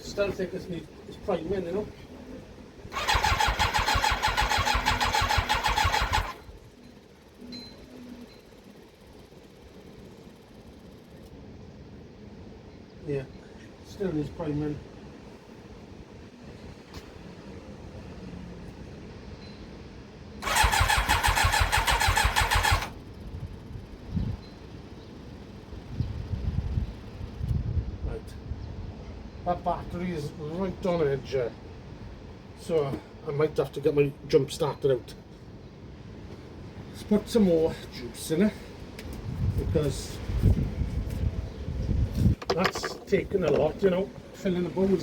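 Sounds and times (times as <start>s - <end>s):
motorcycle engine cranking: 2.9s - 6.6s, 20.4s - 23.0s.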